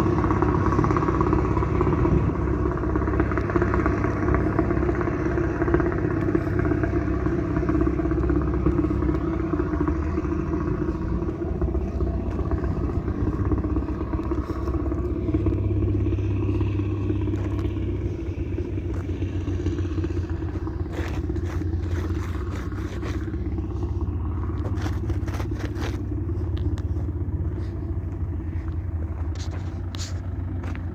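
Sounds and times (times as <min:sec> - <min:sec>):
heavy diesel engine running: 0:00.0 - 0:30.9
clicks and scraping: 0:16.5 - 0:30.9.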